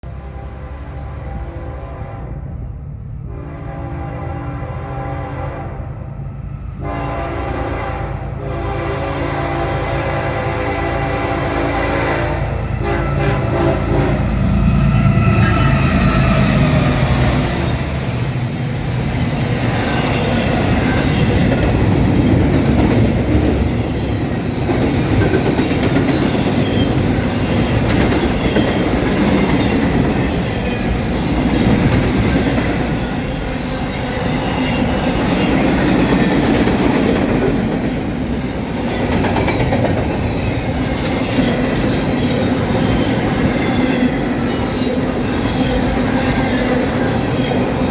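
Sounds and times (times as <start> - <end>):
locomotive horn: 0.0 - 18.1
train rumbling on rails: 0.0 - 47.9
wheel squeal: 43.5 - 44.7.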